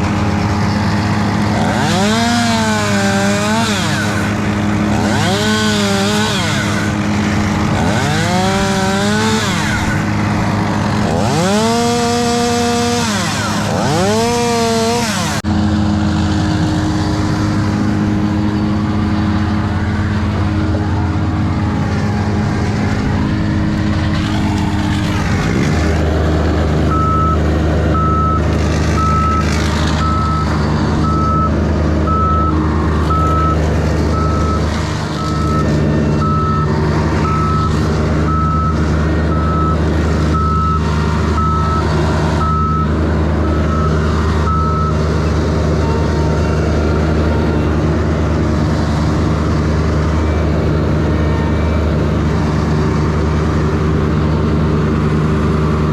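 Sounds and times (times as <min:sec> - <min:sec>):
heavy vehicle engine running: 0:00.0 - 0:55.9
backup alarm beeping: 0:26.9 - 0:27.4.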